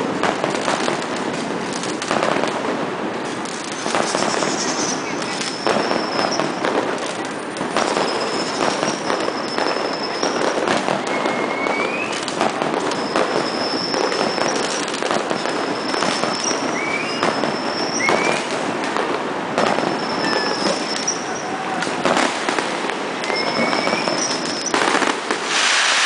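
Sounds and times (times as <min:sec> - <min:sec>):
fireworks crackling bangs: 0:00.0 - 0:26.0
whistling rockets: 0:03.5 - 0:26.0.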